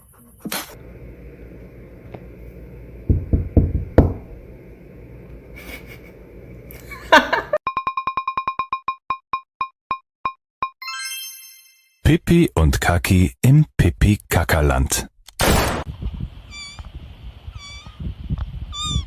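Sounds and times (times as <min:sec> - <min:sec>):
knocks: 0:03.1 - 0:04.3
brief pitched squeal: 0:16.5 - 0:16.8, 0:17.6 - 0:18.0.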